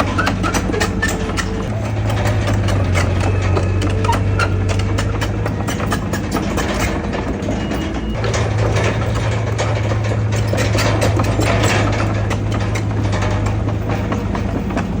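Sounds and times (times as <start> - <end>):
diesel engine running: 0.0 - 15.0
metal clanks and clicks: 0.0 - 15.0.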